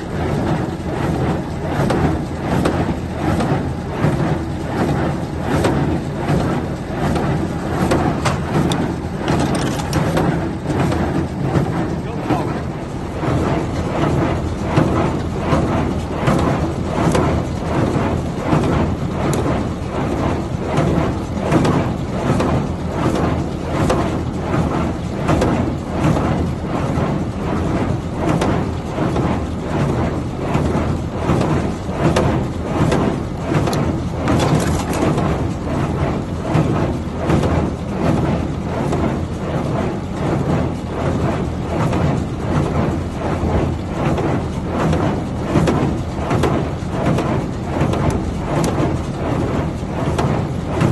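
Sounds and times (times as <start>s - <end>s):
tractor engine humming: 0.0s - 25.1s
baler mechanism clattering: 5.6s - 17.9s, 32.1s - 35.4s.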